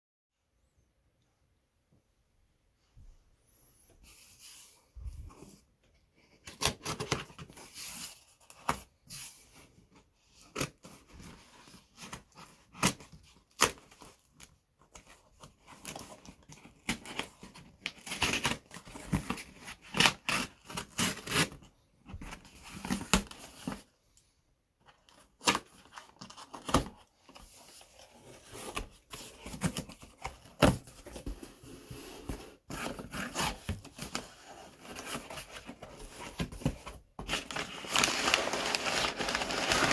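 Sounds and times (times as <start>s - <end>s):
plastic and cardboard rustling: 24.8s - 39.9s.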